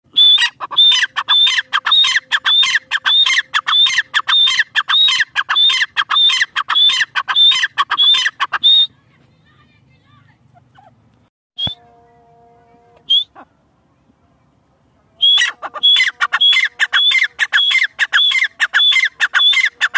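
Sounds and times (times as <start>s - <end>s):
francolin shrill calls: 0.1s - 8.9s, 15.2s - 19.9s.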